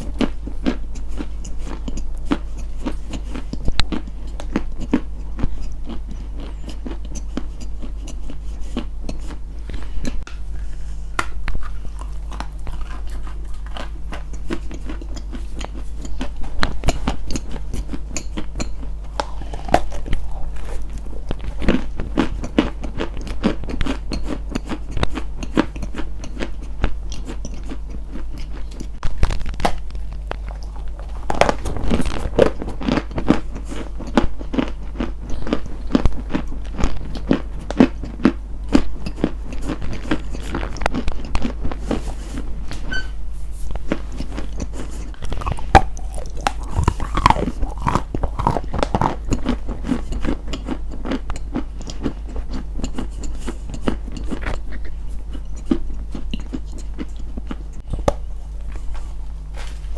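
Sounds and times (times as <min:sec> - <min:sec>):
steady low hum: 0:00.0 - 0:59.9
crisp crunches and crackles: 0:19.1 - 0:23.8, 0:28.8 - 0:37.9, 0:43.7 - 0:55.6.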